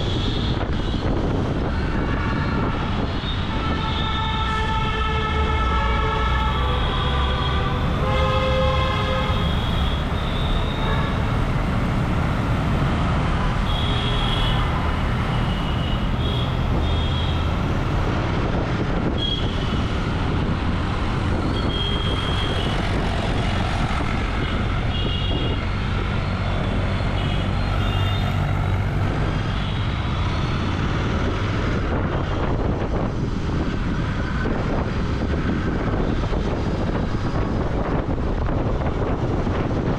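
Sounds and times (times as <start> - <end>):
road traffic: 0.0 - 39.9
vehicle horns honking: 2.1 - 11.3, 13.6 - 14.7, 21.5 - 22.8, 24.9 - 25.6.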